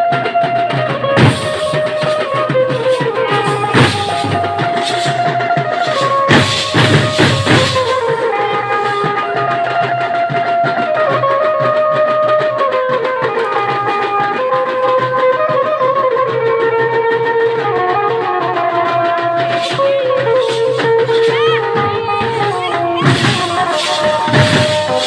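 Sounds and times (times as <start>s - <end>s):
drum beat: 1.2s - 9.2s, 19.4s - 25.0s.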